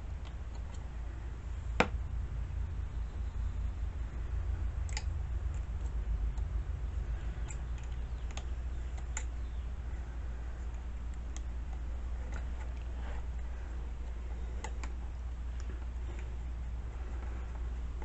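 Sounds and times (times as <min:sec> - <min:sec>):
low rumble: 0:00.0 - 0:18.0
small parts clicking: 0:10.5 - 0:18.0.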